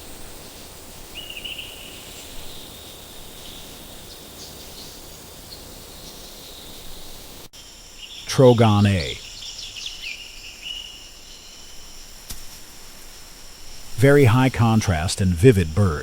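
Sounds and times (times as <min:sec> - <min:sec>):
steady high-pitched hiss: 0:00.0 - 0:16.0
bird chirps: 0:00.2 - 0:11.8.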